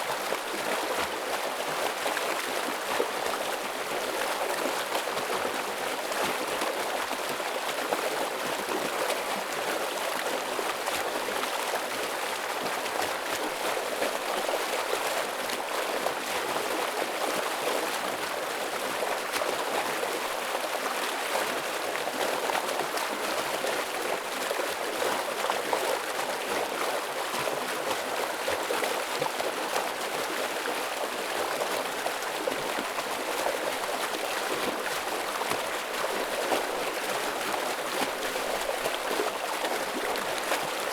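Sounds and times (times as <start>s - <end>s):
stream water rushing: 29.0s - 40.9s.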